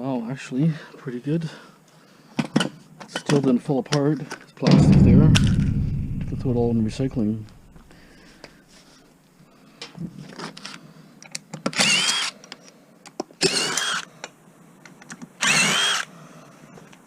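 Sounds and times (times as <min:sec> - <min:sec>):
cordless drill whining: 0:11.8 - 0:12.3, 0:13.4 - 0:14.1, 0:15.4 - 0:16.1.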